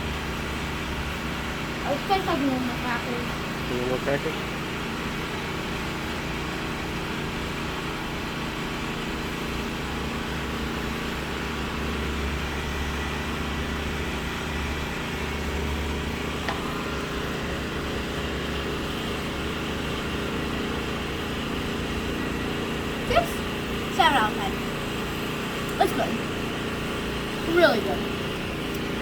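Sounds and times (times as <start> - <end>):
motor droning: 10.7 - 29.0.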